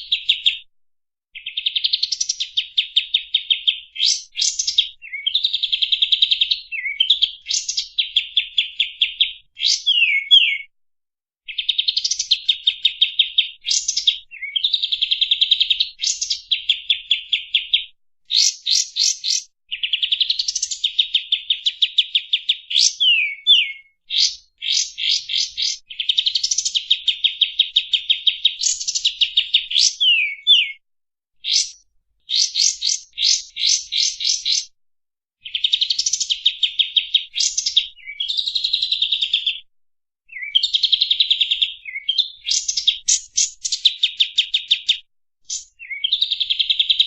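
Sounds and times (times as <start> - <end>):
bird singing rapid notes: 1.4 - 10.7, 11.5 - 30.8, 31.4 - 34.7, 35.4 - 39.6, 40.3 - 47.0
downward-slurred bird whistles: 1.4 - 10.7, 11.5 - 30.8, 31.4 - 34.7, 35.4 - 39.6, 40.3 - 47.0.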